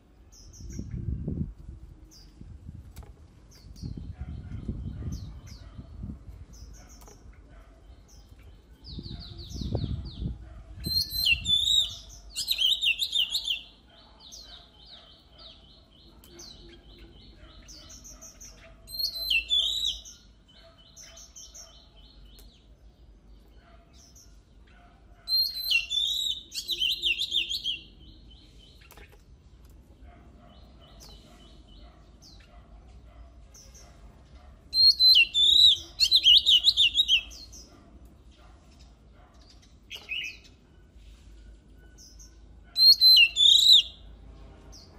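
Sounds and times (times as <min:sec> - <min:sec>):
bird twittering: 0:34.7 - 0:37.7, 0:42.0 - 0:44.0
bird singing rapid high notes: 0:42.0 - 0:44.0.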